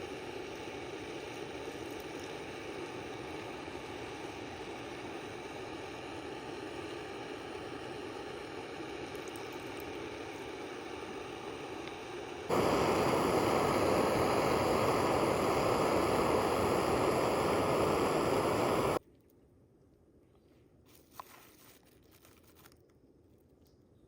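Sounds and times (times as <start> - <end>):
steady rushing noise: 12.5 - 19.0.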